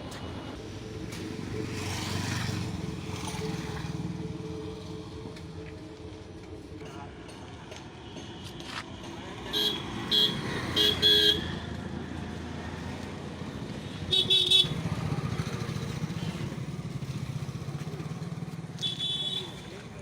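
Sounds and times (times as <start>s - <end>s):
vehicle horn beeps: 9.5s - 11.6s, 14.1s - 14.8s, 18.8s - 19.7s.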